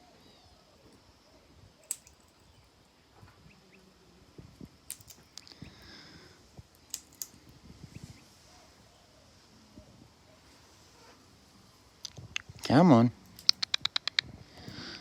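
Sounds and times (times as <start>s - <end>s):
faint high bird calls: 0.0s - 4.1s
parrot cracking seeds: 1.8s - 2.4s, 4.9s - 5.6s, 6.7s - 7.4s, 13.3s - 14.2s.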